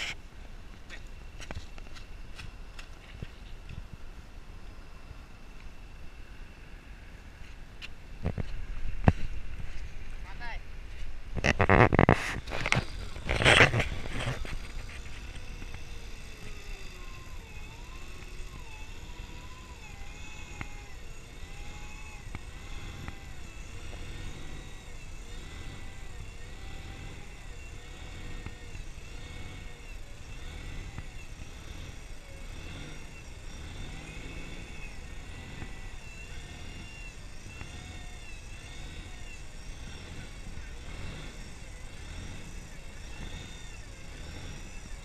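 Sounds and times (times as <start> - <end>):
motor pitch rising and falling: 11.4 - 45.0.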